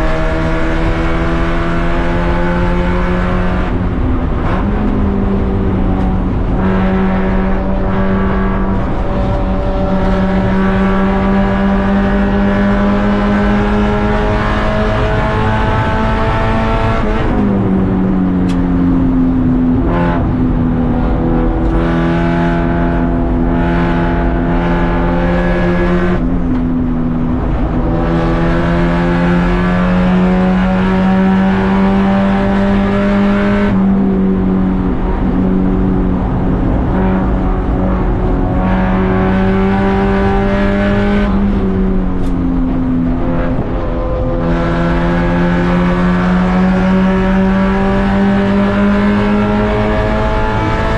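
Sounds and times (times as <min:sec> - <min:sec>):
race car engine: 0:00.0 - 0:50.9.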